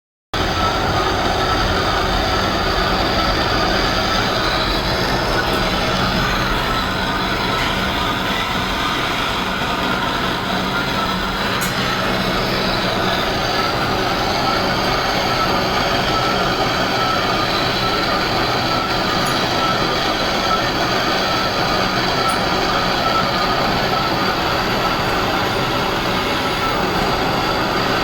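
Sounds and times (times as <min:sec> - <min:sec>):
metal lathe machining: 0:00.4 - 0:28.0.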